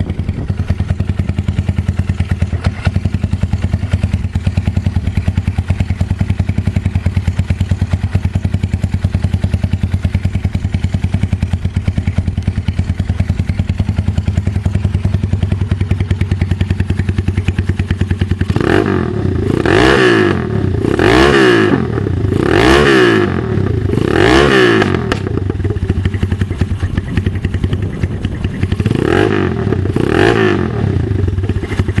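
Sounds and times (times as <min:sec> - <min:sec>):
motorcycle engine idling and revving: 0:00.0 - 0:32.0.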